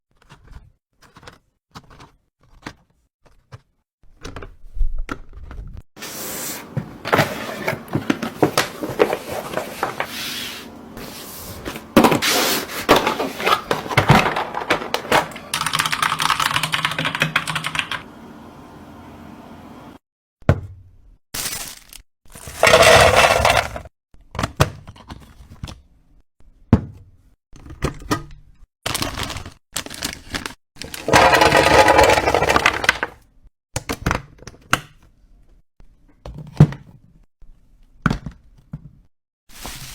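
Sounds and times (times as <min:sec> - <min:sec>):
packaging handling clicks and scrapes: 0:00.1 - 0:15.7, 0:21.4 - 0:25.8, 0:28.9 - 0:33.1, 0:39.5 - 0:39.9.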